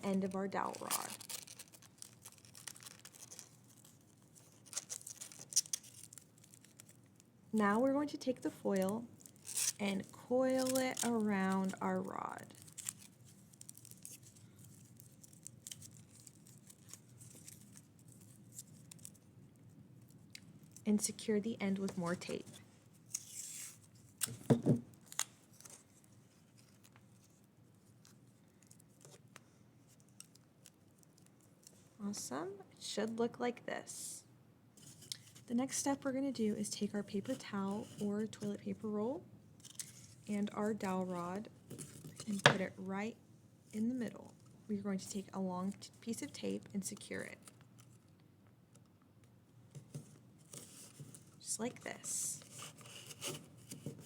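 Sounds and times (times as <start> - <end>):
aluminium foil crackling: 0.0 - 22.4, 29.9 - 31.7
sticky tape tearing: 0.6 - 4.0, 4.6 - 7.0, 9.2 - 11.8.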